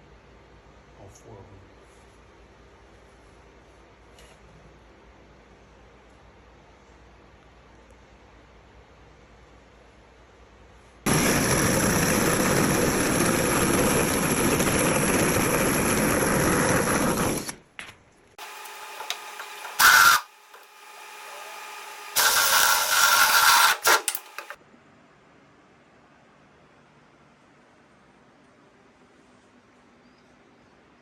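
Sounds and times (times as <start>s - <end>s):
power tool cutting wood: 11.1s - 17.5s, 18.4s - 24.6s.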